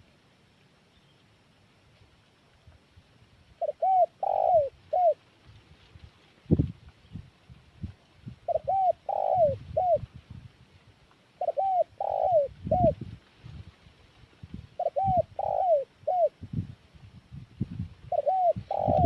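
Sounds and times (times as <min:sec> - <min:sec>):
dove cooing: 0:03.6 - 0:05.2, 0:08.5 - 0:10.0, 0:11.4 - 0:13.0, 0:14.8 - 0:16.4, 0:18.1 - 0:19.0.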